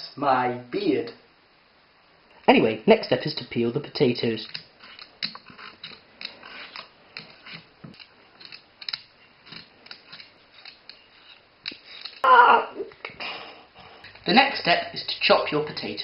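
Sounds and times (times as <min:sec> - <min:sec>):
peeler scraping potato: 0:04.4 - 0:12.3.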